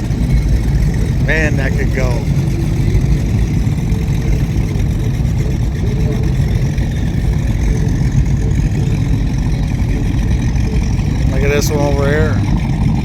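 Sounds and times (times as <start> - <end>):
powerboat engines idling: 0.0 - 13.0.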